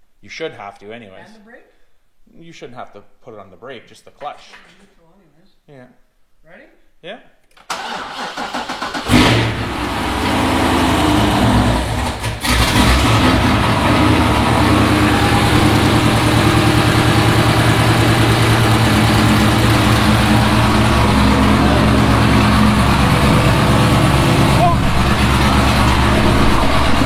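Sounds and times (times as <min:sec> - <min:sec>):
loud car engine idling: 0:09.1 - 0:27.0.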